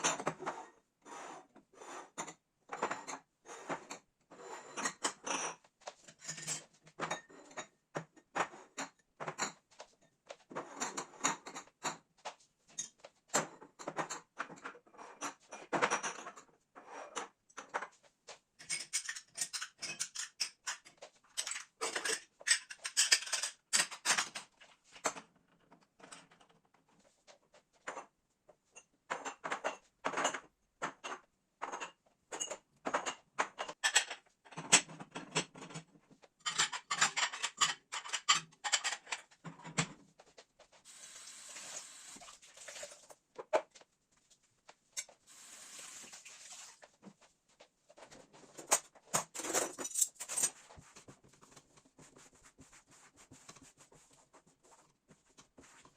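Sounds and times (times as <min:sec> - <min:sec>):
kitchen items clinking and knocking: 0:00.0 - 0:00.6, 0:02.0 - 0:26.8, 0:27.8 - 0:40.2, 0:48.0 - 0:53.7.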